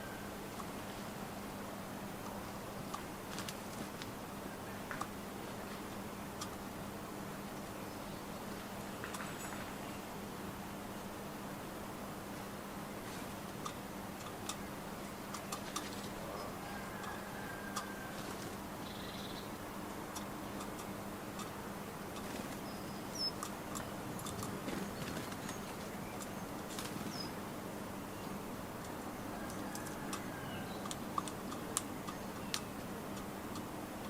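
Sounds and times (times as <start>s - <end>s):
birds tapping at feeder: 13.6s - 27.3s, 28.8s - 34.0s.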